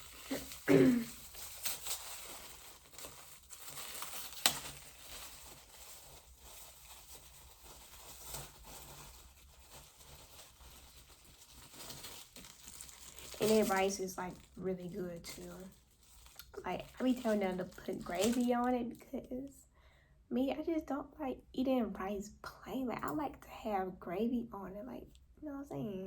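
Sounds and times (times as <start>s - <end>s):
food packaging crinkling: 0.0s - 18.7s.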